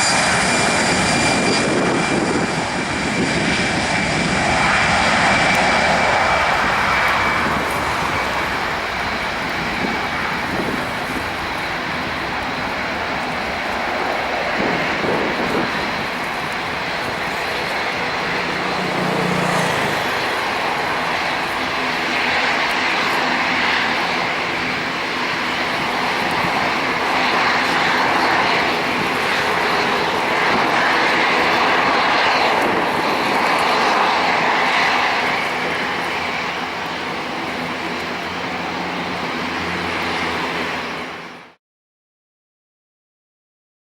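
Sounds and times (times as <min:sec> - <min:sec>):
jet engines rushing: 0:00.0 - 0:41.6.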